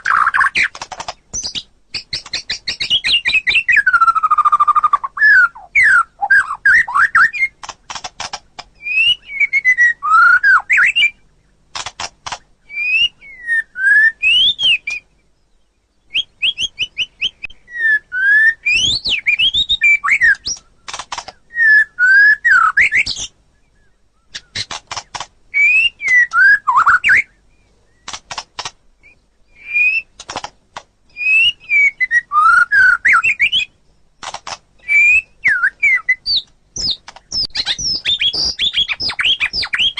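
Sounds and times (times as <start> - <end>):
bird dry clicking notes: 0.0 - 3.7, 7.2 - 8.8, 11.7 - 12.5, 20.2 - 21.4, 24.3 - 25.4, 28.0 - 29.2, 30.1 - 31.2, 34.2 - 39.9
songbird whistling: 1.3 - 7.6, 8.8 - 11.3, 12.6 - 15.3, 16.0 - 24.7, 25.5 - 28.1, 29.0 - 30.2, 31.1 - 33.8, 34.8 - 39.9.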